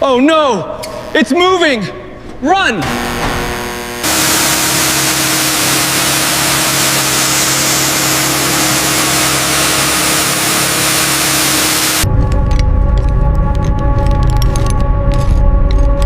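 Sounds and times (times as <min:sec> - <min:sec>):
motor and pump hum: 0:02.8 - 0:12.1
pressure washer water jet hiss: 0:03.2 - 0:12.1.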